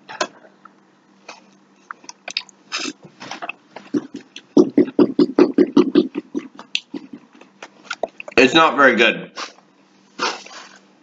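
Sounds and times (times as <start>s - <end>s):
man chewing food: 1.4s - 8.4s.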